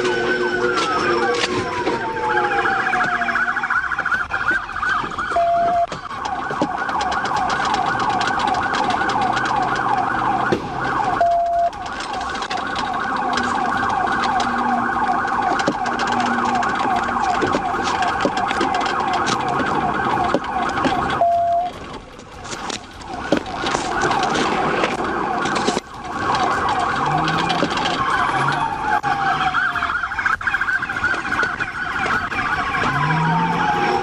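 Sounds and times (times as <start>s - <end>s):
short steady siren tone: 0.0s - 3.8s
police siren yelp: 0.0s - 34.0s
siren wail: 0.0s - 34.0s.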